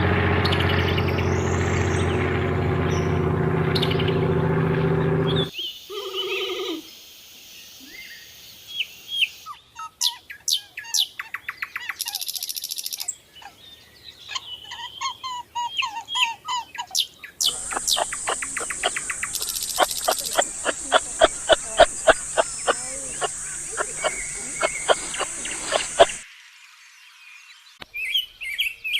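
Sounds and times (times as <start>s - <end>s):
steady high hiss: 6.8s - 9.4s, 17.5s - 26.4s
small birds chirping: 7.6s - 26.2s.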